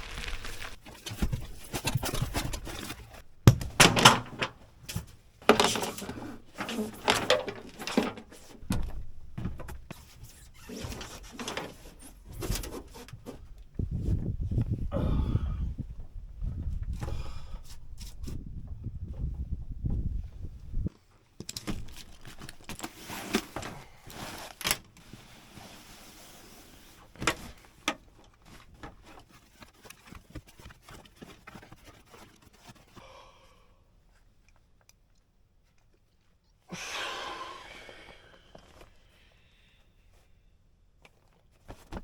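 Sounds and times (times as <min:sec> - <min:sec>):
rustling: 0:00.0 - 0:14.9, 0:15.8 - 0:33.0.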